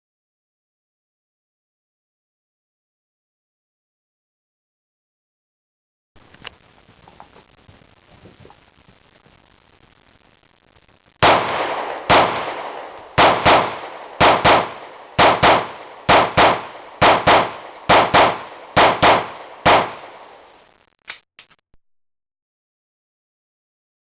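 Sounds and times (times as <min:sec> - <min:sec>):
pistol shots: 0:11.2 - 0:20.6.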